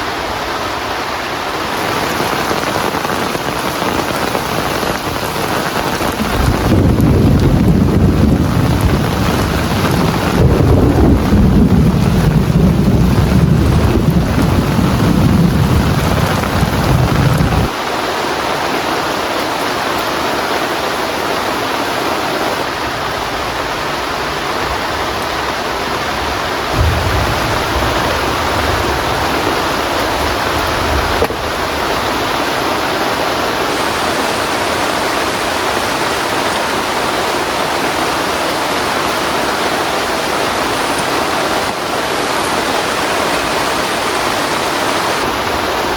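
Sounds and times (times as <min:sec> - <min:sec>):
heavy rain: 0:00.0 - 0:45.9
thunder rumbling: 0:01.8 - 0:17.8, 0:22.6 - 0:38.4.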